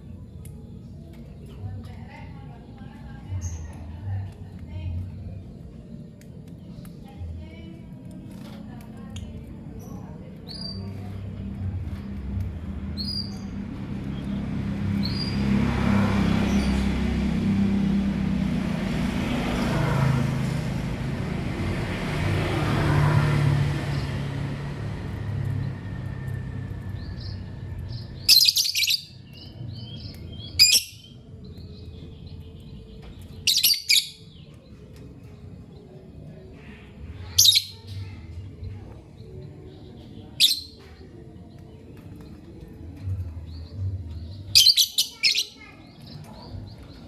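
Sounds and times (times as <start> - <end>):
lovebirds chirping: 0.0 - 47.0
low rumble: 9.2 - 28.4.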